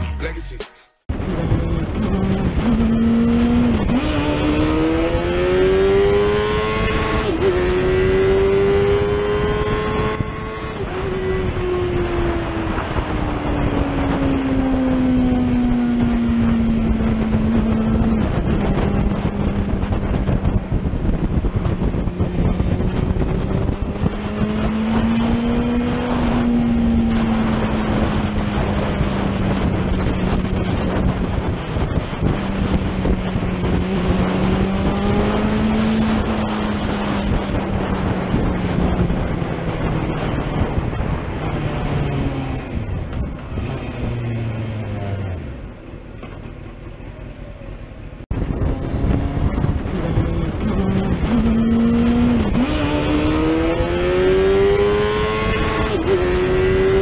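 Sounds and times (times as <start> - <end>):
motorcycle engine at high revs: 1.1 - 47.0, 48.1 - 57.0
wind noise on microphone: 1.1 - 47.0, 48.1 - 57.0.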